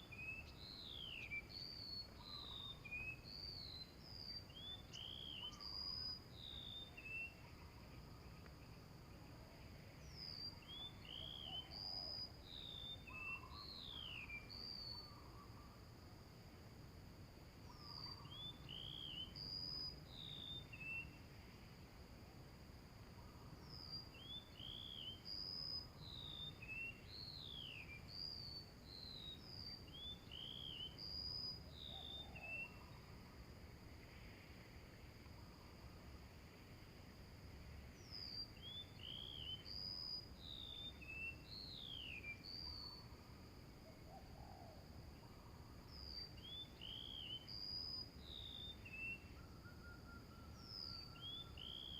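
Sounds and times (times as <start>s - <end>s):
small bird whistled calls: 0.0s - 7.4s, 10.0s - 15.7s, 17.6s - 21.2s, 23.6s - 33.0s, 38.0s - 43.2s, 45.4s - 51.9s.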